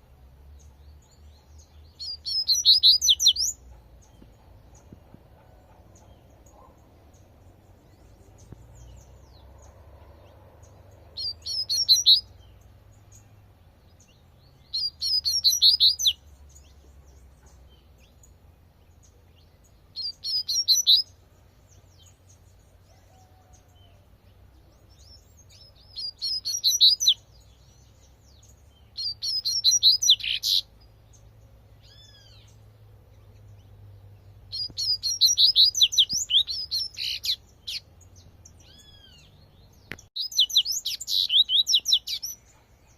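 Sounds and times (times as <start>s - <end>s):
bird singing rapid high notes: 1.9s - 3.6s, 10.7s - 12.6s, 14.6s - 16.2s, 19.9s - 21.1s, 25.6s - 27.2s, 28.8s - 30.8s, 34.5s - 38.0s, 40.0s - 42.4s.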